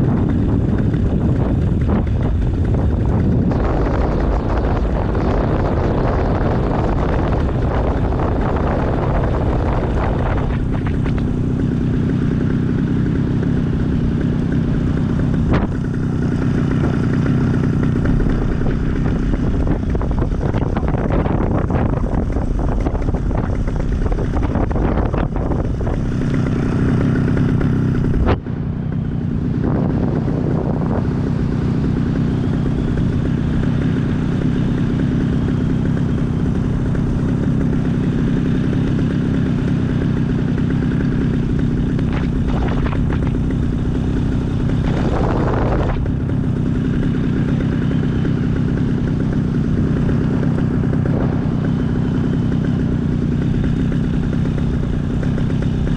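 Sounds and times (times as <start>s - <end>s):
wind rushing past microphone: 0.0s - 11.5s, 15.2s - 32.2s, 41.9s - 49.3s
small aircraft engine running: 0.0s - 55.9s.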